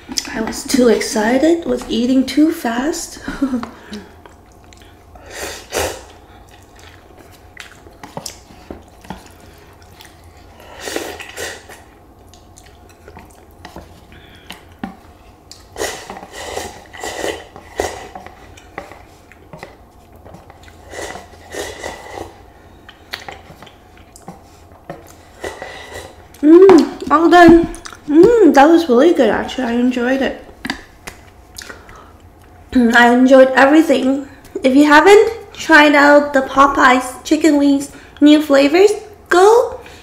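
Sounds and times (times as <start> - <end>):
chewing: 3.9 - 5.1, 6.1 - 26.4, 27.7 - 28.1
utensil scraping a noodle cup: 15.8 - 18.3, 20.8 - 22.4.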